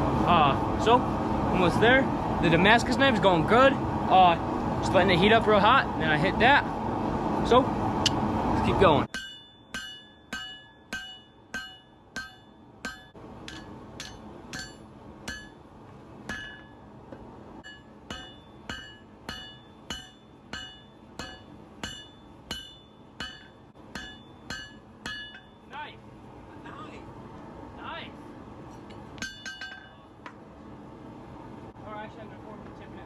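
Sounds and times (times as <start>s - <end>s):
hammer striking metal on anvil: 9.1s - 15.6s, 16.2s - 25.8s, 28.8s - 30.0s.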